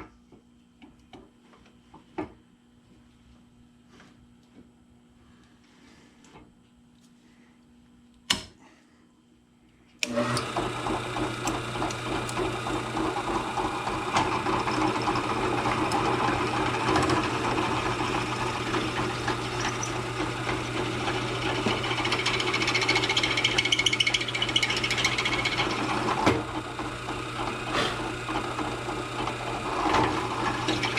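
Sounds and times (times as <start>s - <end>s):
drill press motor humming: 10.0s - 30.9s
drill bit cutting metal: 10.1s - 30.9s.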